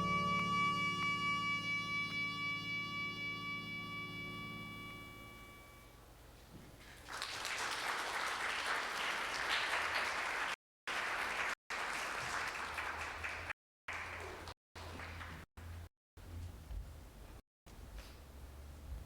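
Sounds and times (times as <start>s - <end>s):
held music note: 0.0s - 6.1s
audience applause: 7.0s - 15.4s.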